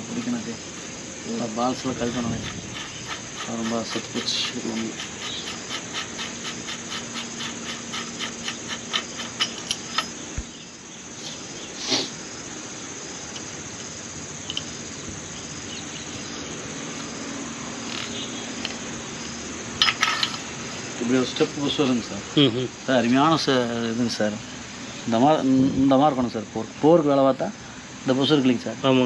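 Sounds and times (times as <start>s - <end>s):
workshop hum: 0.0s - 26.0s.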